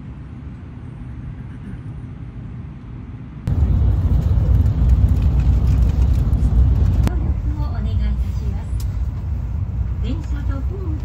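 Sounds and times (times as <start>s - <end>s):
train cabin low rumble: 0.0s - 11.0s.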